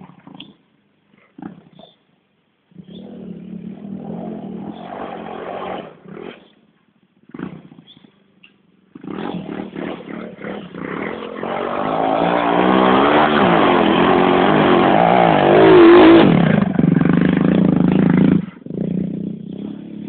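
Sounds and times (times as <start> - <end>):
motorbike engine revving: 2.8 - 6.6, 7.2 - 8.2, 8.9 - 20.0.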